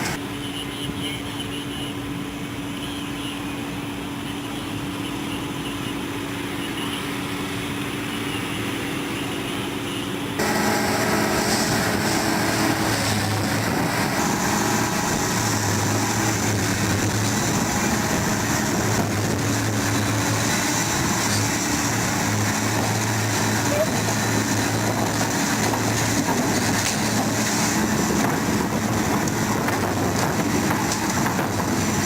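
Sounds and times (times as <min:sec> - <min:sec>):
engine running: 0:00.0 - 0:00.2, 0:10.2 - 0:32.0
louder engine sound: 0:10.4 - 0:32.0.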